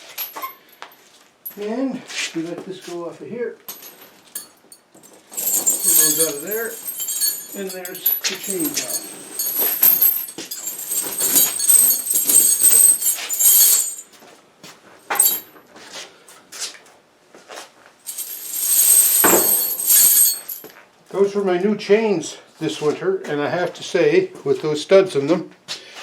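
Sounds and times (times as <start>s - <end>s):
tire chains rattling and clinking: 5.2s - 14.0s, 15.1s - 15.4s, 18.1s - 20.6s.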